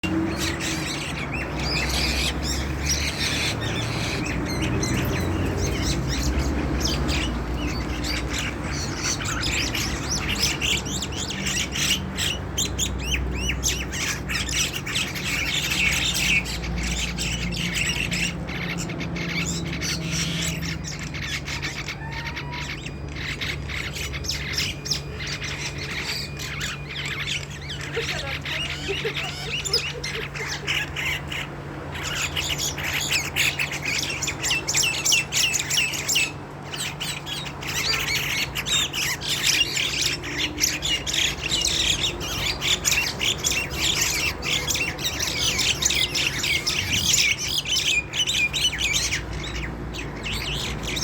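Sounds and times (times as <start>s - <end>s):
small birds chirping and squawking: 0.0s - 51.0s.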